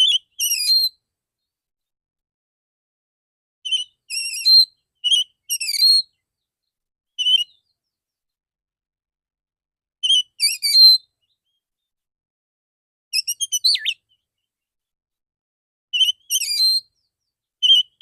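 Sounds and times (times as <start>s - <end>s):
bird singing whistled phrases: 0.0s - 1.0s, 3.7s - 6.1s, 7.2s - 7.8s, 10.0s - 11.6s, 13.2s - 14.2s, 16.0s - 18.0s.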